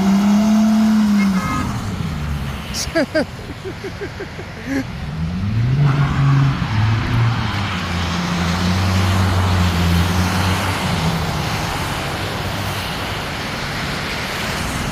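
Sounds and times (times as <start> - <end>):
car engine revving: 0.0 - 3.2, 4.7 - 12.6.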